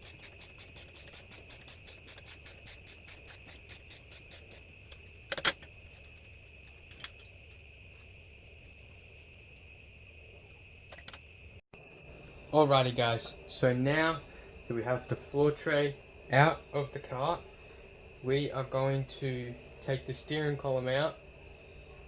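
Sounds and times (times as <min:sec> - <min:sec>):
ratchet spanner clicking: 0:00.0 - 0:04.7.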